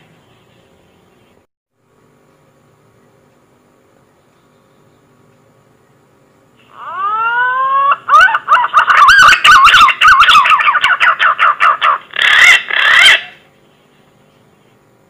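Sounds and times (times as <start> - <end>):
green pigeon whistling song: 6.8 - 13.4.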